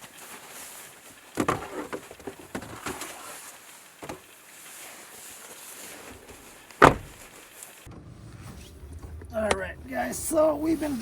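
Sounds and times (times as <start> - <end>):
faint steady hiss: 0.0 - 7.9.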